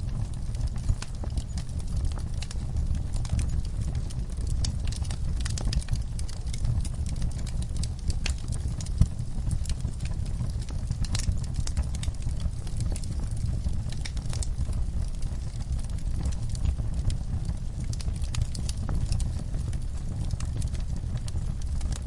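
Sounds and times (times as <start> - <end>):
low rumble of flames: 0.0 - 22.0
wood fire crackling and popping: 0.0 - 22.0.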